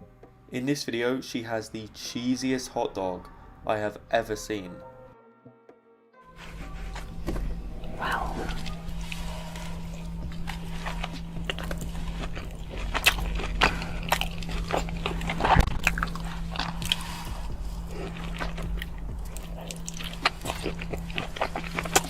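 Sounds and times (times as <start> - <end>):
steady low hum: 6.3 - 22.0
hot dog being bitten and chewed: 6.5 - 22.0.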